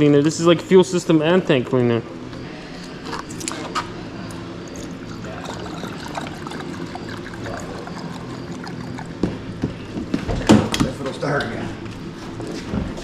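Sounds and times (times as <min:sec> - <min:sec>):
liquid pouring: 0:04.7 - 0:09.3.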